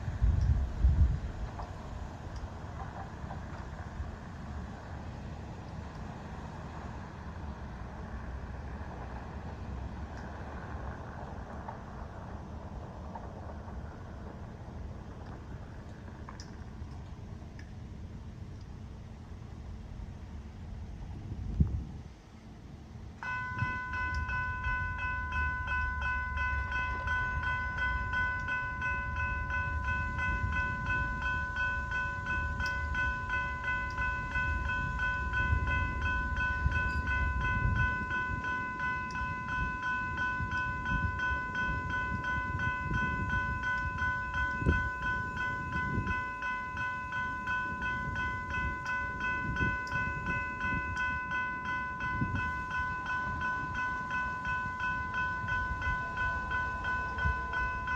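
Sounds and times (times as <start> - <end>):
train rumbling past: 0.0 - 57.9
railroad crossing bell ringing: 23.2 - 57.9.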